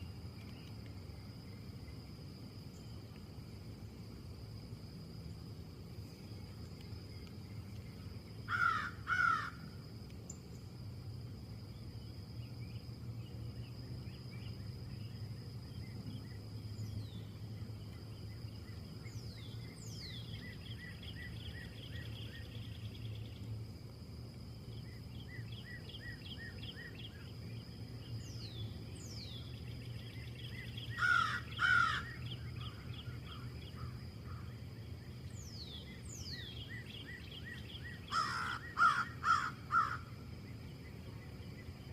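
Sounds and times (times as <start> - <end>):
harsh cawing bird calls: 8.5 - 9.6, 30.9 - 34.5, 38.0 - 40.1
small birds chirping and trilling: 24.7 - 40.0.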